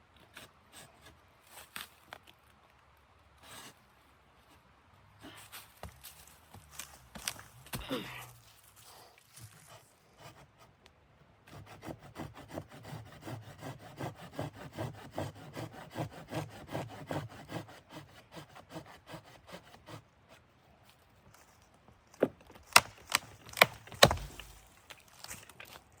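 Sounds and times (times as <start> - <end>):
hand saw cutting wood: 11.5 - 20.4, 22.8 - 24.7.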